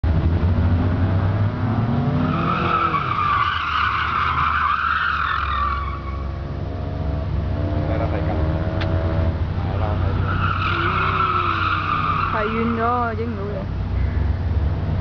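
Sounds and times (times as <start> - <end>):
car engine revving: 0.0 - 15.0
tyres squealing: 2.2 - 6.3, 9.6 - 13.4.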